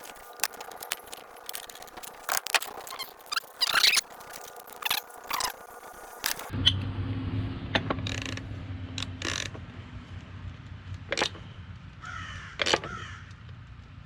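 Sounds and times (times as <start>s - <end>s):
wrench clicking and scraping on metal: 0.0s - 6.5s, 12.6s - 13.0s
steady low hum: 0.0s - 14.0s
brief squeak: 2.5s - 5.6s.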